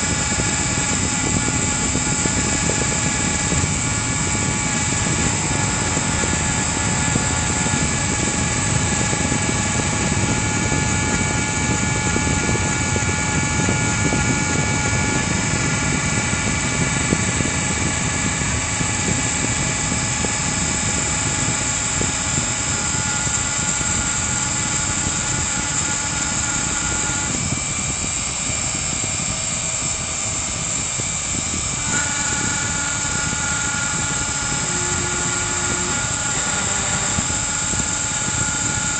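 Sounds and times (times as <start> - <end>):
router spindle engraving wood: 0.0 - 38.9
machine tones shifting pitch: 31.8 - 38.9.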